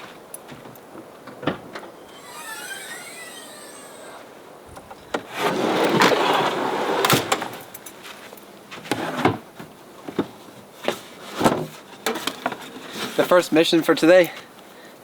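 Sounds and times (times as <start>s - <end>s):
camping gear rustling: 0.0s - 13.3s.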